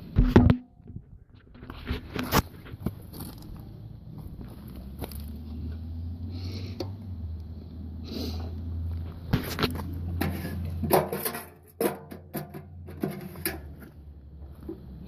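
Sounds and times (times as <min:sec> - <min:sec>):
sharp knocks and clatters: 0:00.2 - 0:02.8, 0:09.2 - 0:13.9.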